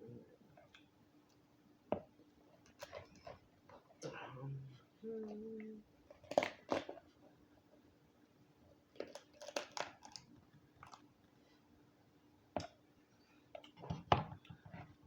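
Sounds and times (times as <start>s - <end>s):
crunching and chewing: 2.6s - 3.9s, 6.0s - 7.2s, 8.9s - 11.1s
crab shell cracking: 6.1s - 7.0s, 8.9s - 11.1s.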